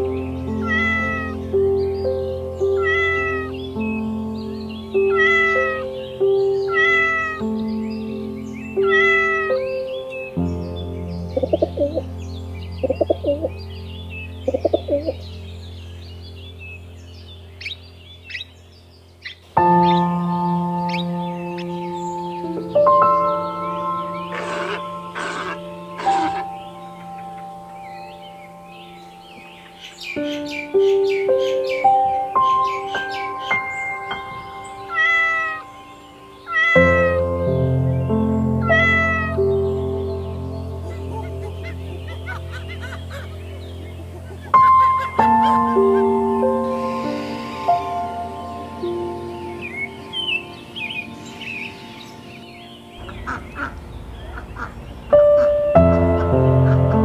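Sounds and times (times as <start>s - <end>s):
background music: 0.0s - 18.4s, 19.2s - 57.0s
small birds chirping: 0.0s - 57.0s
parakeet rising calls: 0.5s - 1.5s, 2.6s - 3.8s, 5.0s - 7.5s, 8.7s - 9.8s, 23.3s - 27.4s, 32.4s - 37.5s, 38.6s - 39.6s, 44.5s - 57.0s
cat meowing: 0.6s - 1.4s, 2.8s - 3.5s, 5.1s - 5.8s, 6.7s - 7.4s, 8.8s - 9.6s, 34.9s - 35.6s, 36.5s - 37.2s, 38.6s - 39.4s
pigeons cooing: 11.4s - 12.0s, 12.8s - 13.6s, 14.5s - 15.2s, 24.1s - 27.4s.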